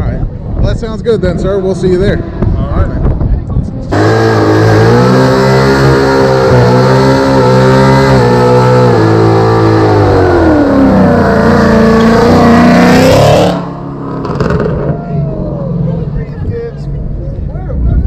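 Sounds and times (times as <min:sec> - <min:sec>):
vehicle engine revving: 0:03.7 - 0:17.1.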